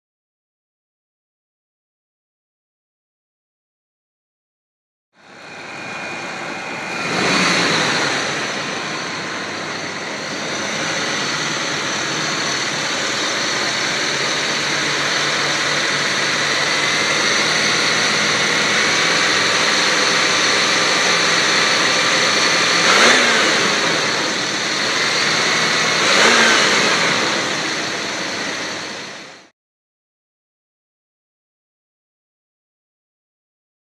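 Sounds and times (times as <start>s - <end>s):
car engine idling: 5.2s - 29.5s
engine revs: 5.2s - 29.5s.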